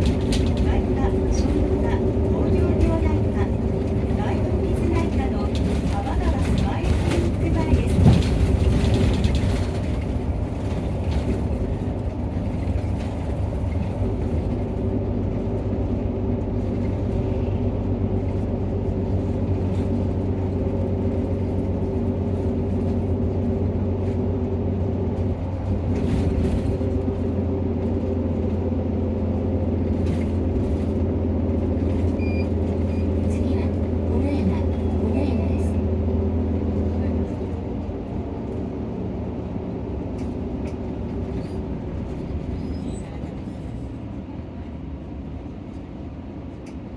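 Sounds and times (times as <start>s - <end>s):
bus diesel engine drone: 0.0s - 46.9s.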